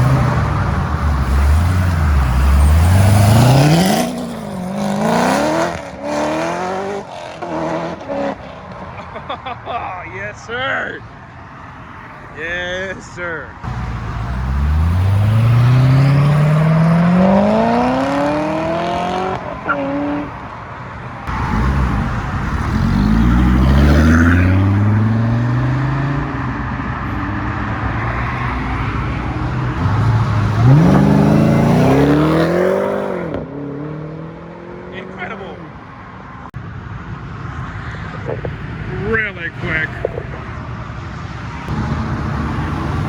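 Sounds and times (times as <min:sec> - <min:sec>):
cars accelerating hard: 0:00.0 - 0:09.3, 0:13.6 - 0:20.6, 0:21.2 - 0:35.8, 0:41.6 - 0:43.0.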